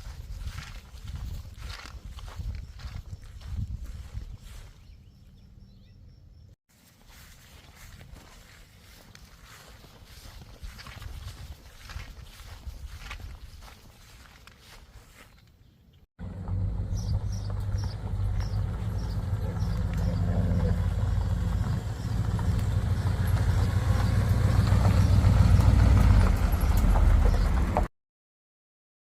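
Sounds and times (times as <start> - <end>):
car engine running: 16.2 - 27.9.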